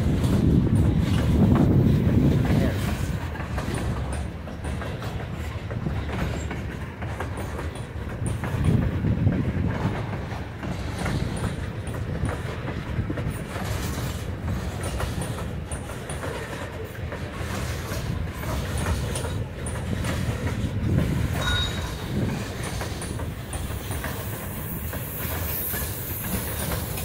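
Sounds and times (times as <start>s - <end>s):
freight train wheels clattering: 0.0s - 27.0s
high wheel squeaks: 13.3s - 27.0s.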